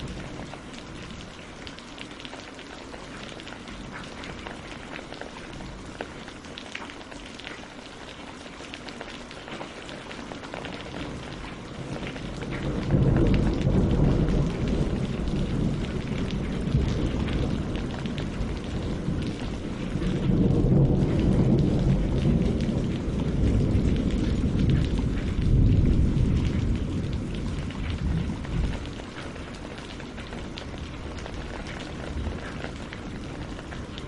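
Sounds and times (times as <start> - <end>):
rain on leaves and water: 0.0 - 34.0
rumble of thunder: 10.8 - 34.0.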